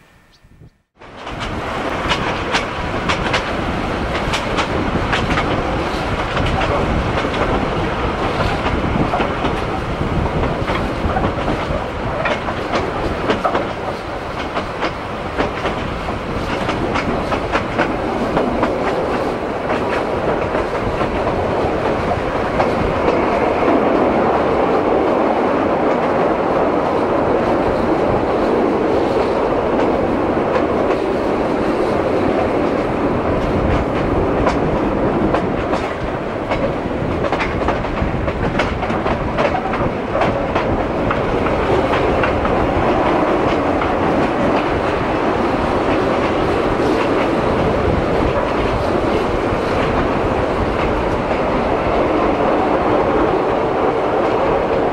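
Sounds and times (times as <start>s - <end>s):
train rumble: 0.0s - 54.9s
wheels clicking over rail joints: 1.1s - 23.2s.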